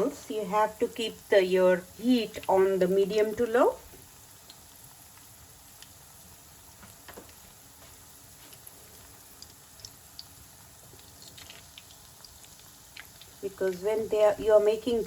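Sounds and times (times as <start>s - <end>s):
food sizzling in oil: 0.0s - 15.0s
oil popping: 3.9s - 14.4s.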